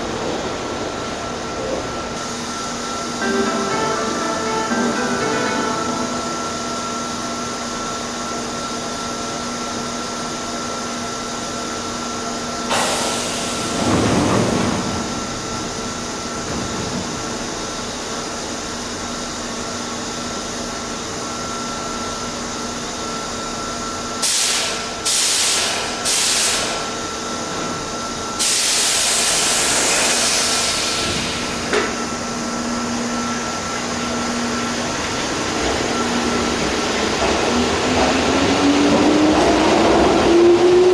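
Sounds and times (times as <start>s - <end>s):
underground station hum: 0.0s - 40.9s
compressed air hissing from train: 12.7s - 13.9s, 24.2s - 27.0s, 28.4s - 31.7s.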